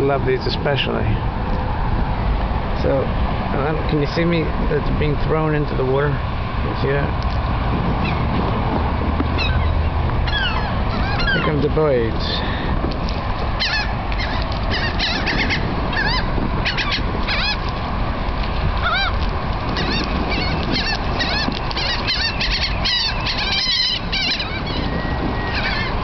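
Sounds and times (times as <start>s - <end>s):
steady low rumble: 0.0s - 26.0s
seagulls squawking: 8.0s - 8.4s, 9.3s - 12.6s, 13.4s - 17.7s, 18.8s - 26.0s.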